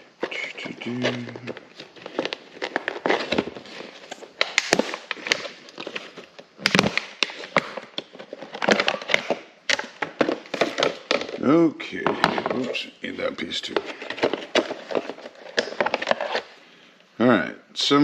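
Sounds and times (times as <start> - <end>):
plastic packaging crackling: 0.0 - 11.4.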